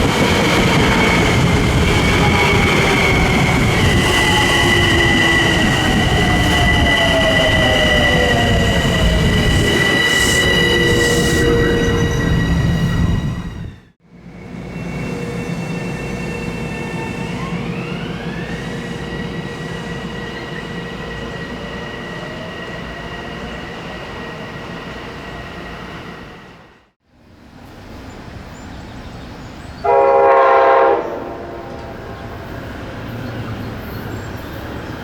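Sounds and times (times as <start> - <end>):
electric train motor whine: 0.0 - 24.1
train wheel and rail noise: 0.0 - 35.0
train horn: 9.6 - 12.6, 29.8 - 32.5.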